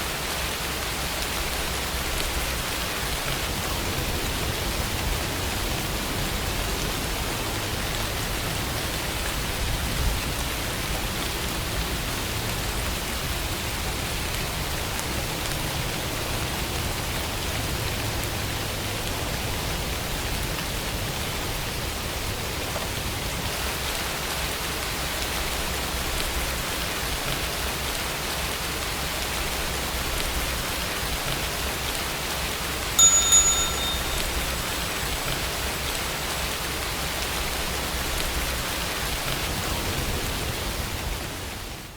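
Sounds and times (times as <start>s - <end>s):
steady rain falling: 0.0s - 41.9s
timer chime: 33.0s - 35.0s.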